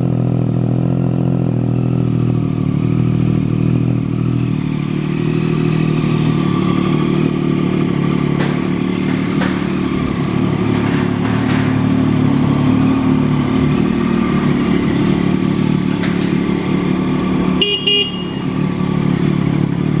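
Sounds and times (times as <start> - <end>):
motorcycle engine idling: 0.0 - 20.0
horn beeps: 17.6 - 18.8.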